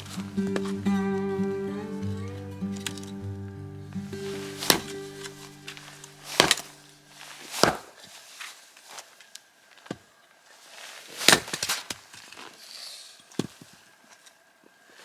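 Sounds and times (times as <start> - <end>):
axe chopping wood: 4.6 - 4.9, 6.3 - 6.8, 7.5 - 8.0.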